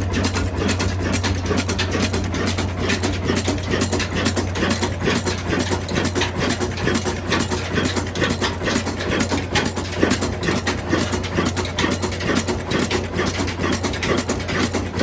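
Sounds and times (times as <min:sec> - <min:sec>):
diesel engine clattering: 0:00.0 - 0:15.0.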